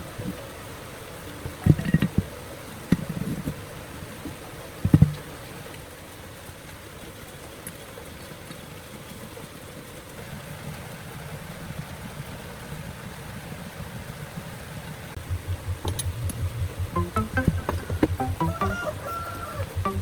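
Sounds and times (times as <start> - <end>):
low motor hum: 15.2 - 18.7
sharp clicks: 15.2 - 18.7
low pulsing: 15.2 - 19.0, 19.6 - 20.0.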